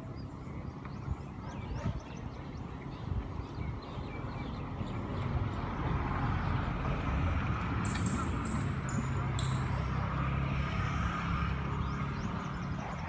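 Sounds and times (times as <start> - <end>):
boat engine humming: 6.6 - 10.6.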